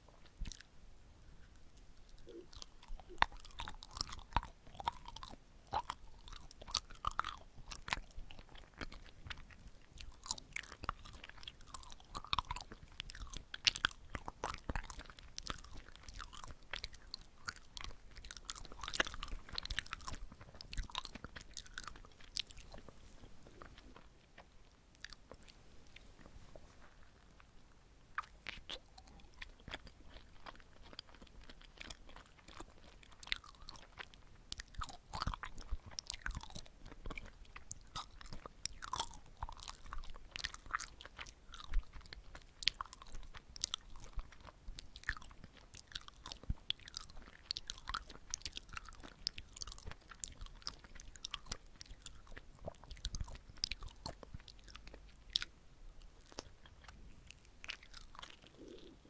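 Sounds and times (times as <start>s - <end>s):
sticky wet chewing: 0.0s - 0.7s, 1.4s - 59.0s.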